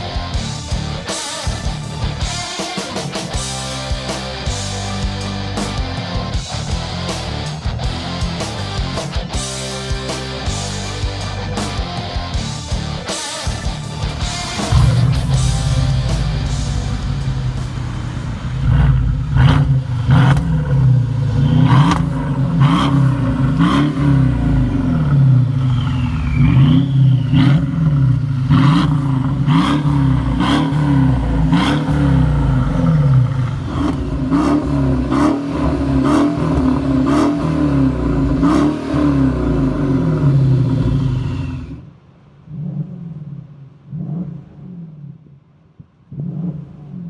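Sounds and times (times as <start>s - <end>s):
car engine revving: 0.0s - 47.0s
exhaust cracks: 11.0s - 47.0s.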